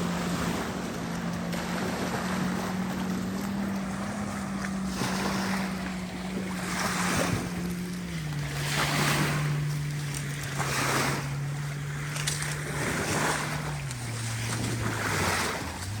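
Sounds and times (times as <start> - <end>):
boat engine droning: 0.0 - 16.0
small waves washing on shore: 0.0 - 16.0.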